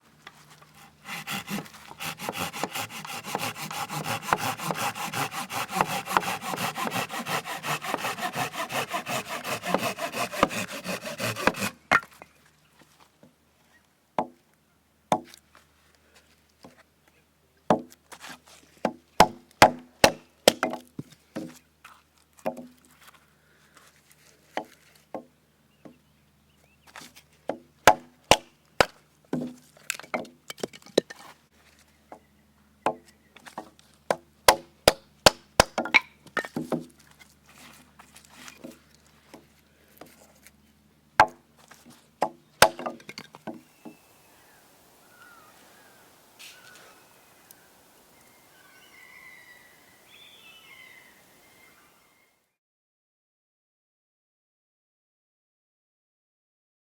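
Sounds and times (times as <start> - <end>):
firewood being chopped: 1.1 - 12.2, 18.8 - 21.6, 27.5 - 31.2, 32.9 - 37.0, 41.2 - 41.4, 42.2 - 44.0.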